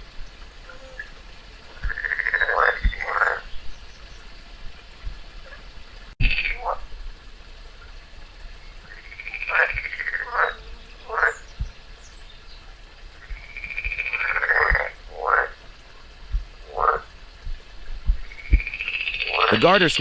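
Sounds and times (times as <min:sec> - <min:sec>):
frog calling and croaking: 0:01.8 - 0:03.5, 0:06.2 - 0:06.8, 0:08.9 - 0:11.5, 0:13.2 - 0:15.6, 0:16.6 - 0:17.1, 0:18.2 - 0:20.0.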